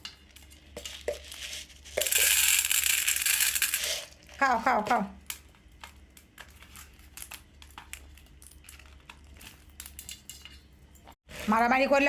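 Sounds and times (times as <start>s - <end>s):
parrots crunching food: 5.3s - 10.3s.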